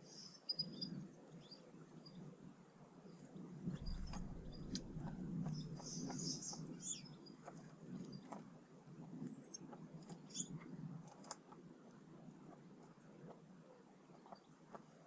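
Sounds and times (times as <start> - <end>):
low steady rumble: 3.6 - 7.3
birds chirping: 3.7 - 7.4.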